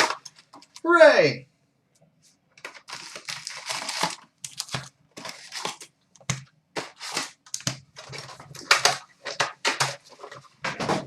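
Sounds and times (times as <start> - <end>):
plastic wrap and cardboard crinkling: 0.0 - 0.8, 2.6 - 10.8.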